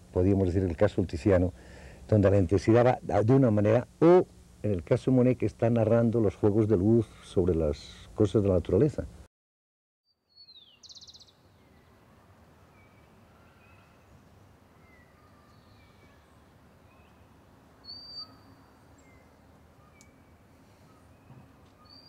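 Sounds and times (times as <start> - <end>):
outdoor background hiss: 0.0 - 9.3, 10.1 - 22.0
small birds calling: 10.3 - 12.0, 12.7 - 22.0.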